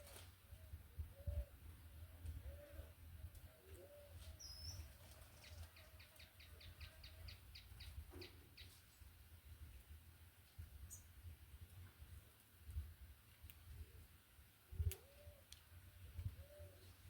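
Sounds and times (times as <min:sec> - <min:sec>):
faint low bird call: 0:00.0 - 0:08.8, 0:14.8 - 0:17.0.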